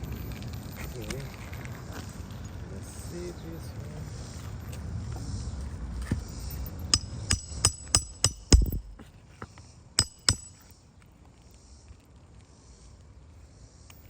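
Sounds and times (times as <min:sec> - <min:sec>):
hammer striking nail: 0:07.0 - 0:09.1, 0:10.0 - 0:10.6.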